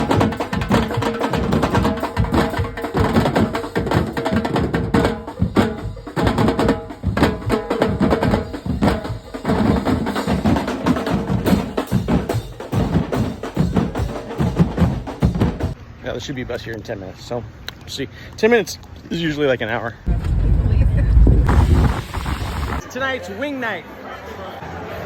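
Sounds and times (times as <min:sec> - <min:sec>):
drum-led music with steady beat: 0:00.0 - 0:15.8.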